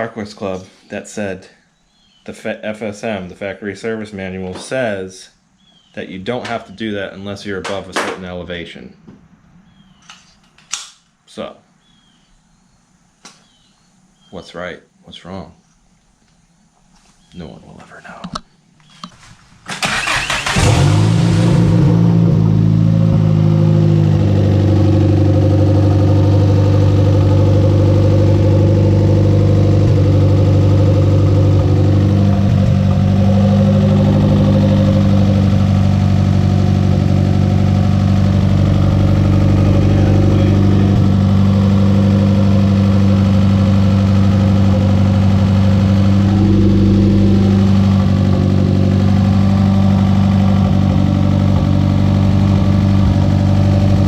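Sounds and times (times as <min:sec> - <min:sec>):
car engine idling: 0:19.8 - 0:54.0.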